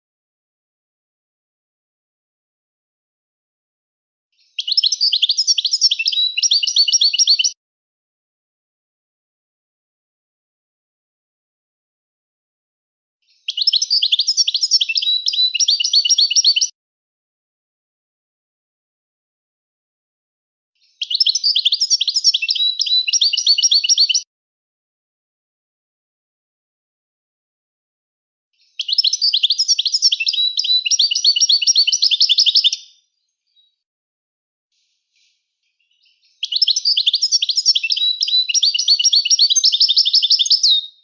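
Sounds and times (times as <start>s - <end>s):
finch singing: 4.4s - 7.6s, 13.3s - 16.7s, 20.8s - 24.2s, 28.6s - 33.8s, 34.8s - 41.0s.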